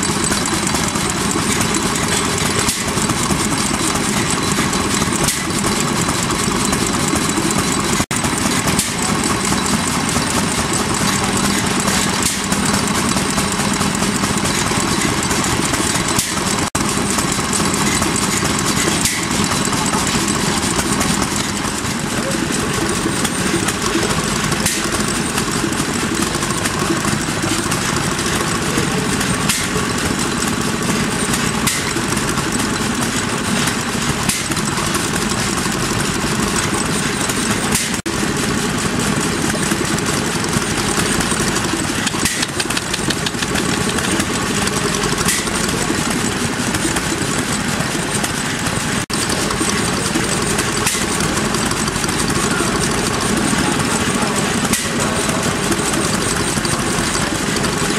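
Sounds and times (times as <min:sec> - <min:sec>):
small stationary engines running: 0:00.0 - 0:57.9.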